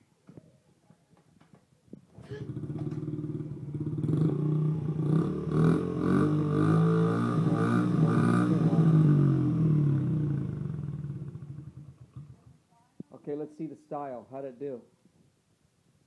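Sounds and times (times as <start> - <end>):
motorcycle engine starting and revving: 2.2 - 12.6.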